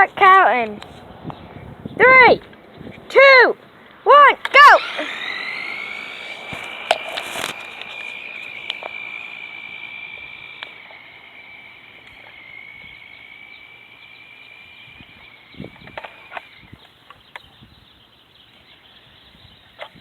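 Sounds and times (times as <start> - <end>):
rc car motor whining: 4.4 - 16.9.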